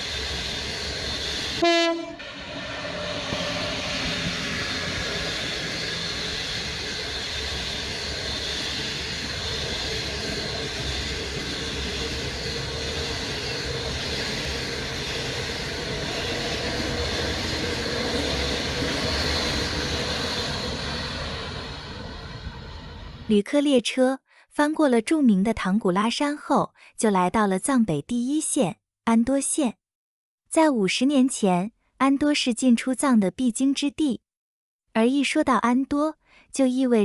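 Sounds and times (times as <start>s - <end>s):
passenger train rumbling: 0.0s - 23.6s.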